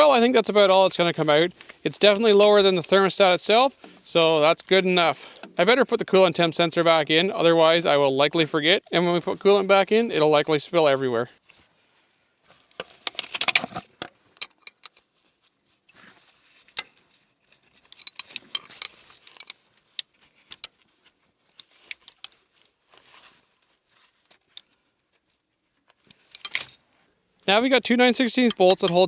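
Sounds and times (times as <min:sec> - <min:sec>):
metal hand tools clinking: 0:17.9 - 0:19.5, 0:26.1 - 0:26.7, 0:28.3 - 0:29.0.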